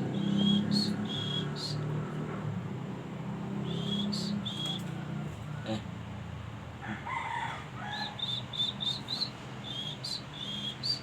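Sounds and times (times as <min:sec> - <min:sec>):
rooster crowing: 0:06.8 - 0:08.3.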